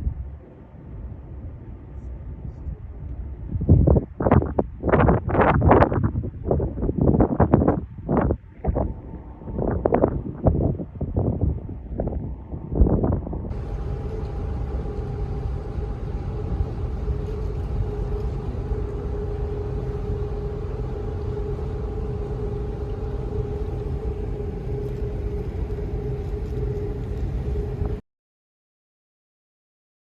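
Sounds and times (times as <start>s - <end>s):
low mechanical rumble: 0.0s - 28.0s
two-tone hum: 13.5s - 28.0s.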